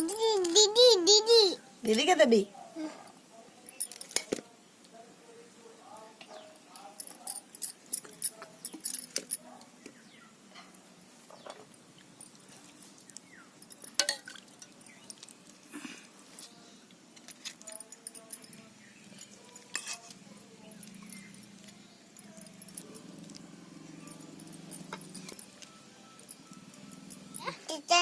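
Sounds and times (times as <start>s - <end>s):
utensils and dishes clinking: 3.7s - 4.4s, 6.7s - 9.6s, 10.6s - 15.5s, 17.2s - 27.6s.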